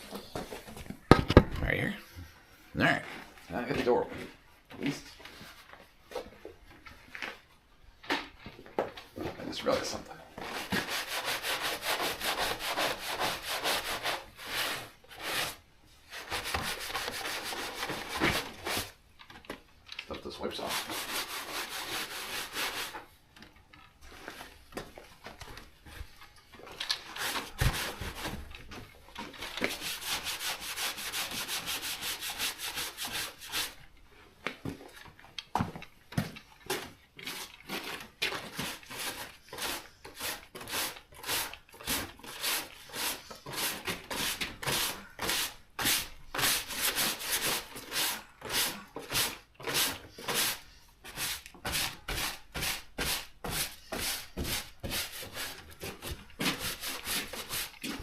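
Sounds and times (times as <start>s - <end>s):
hand scrubbing a surface: 10.4s - 19.0s, 20.4s - 23.1s, 27.0s - 28.4s, 29.6s - 33.8s, 37.2s - 58.0s.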